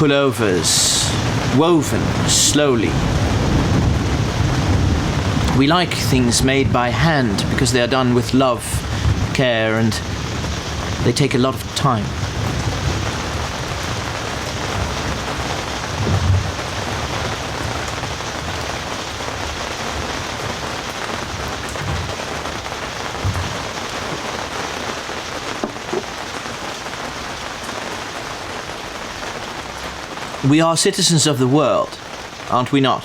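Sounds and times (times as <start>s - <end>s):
steady rain hiss: 0.0s - 33.0s
short low thumps: 12.0s - 19.0s, 19.7s - 24.3s.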